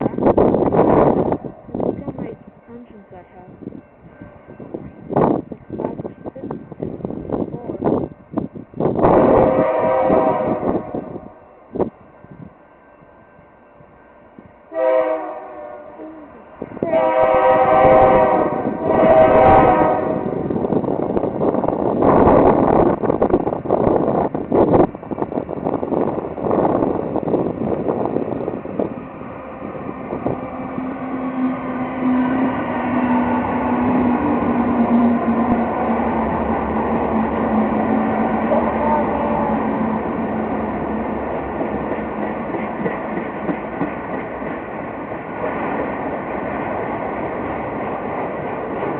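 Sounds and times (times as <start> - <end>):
diesel locomotive engine drone: 0.0 - 48.9
train rumble: 0.0 - 48.9
locomotive air horn blasts: 9.1 - 11.1, 14.7 - 16.2, 16.8 - 20.3.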